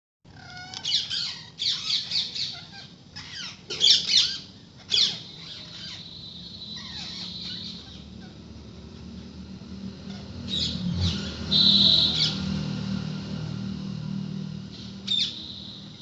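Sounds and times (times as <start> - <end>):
parrots squawking: 0.3 - 8.6, 10.0 - 12.5, 14.8 - 15.7.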